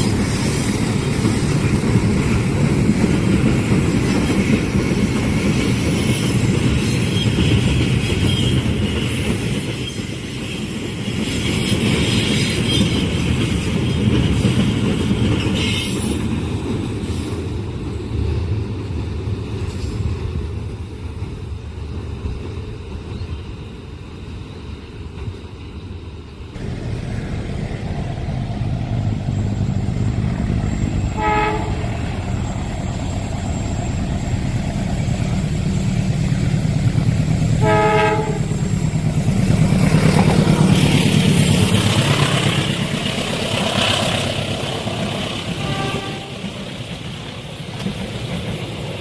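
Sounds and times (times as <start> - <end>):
diesel locomotive engine running: 0.0 - 19.7, 24.8 - 49.0
train wheels on rails: 0.0 - 49.0
train horn blasts: 31.1 - 32.0, 37.5 - 38.7, 45.5 - 46.6.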